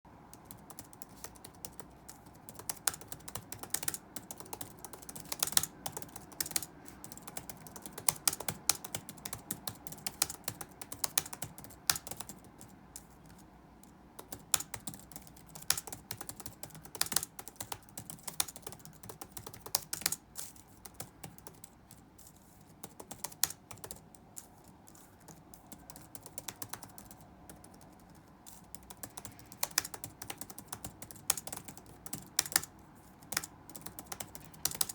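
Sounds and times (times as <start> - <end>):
keyboard typing clicks: 0.3 - 22.0, 22.8 - 34.9.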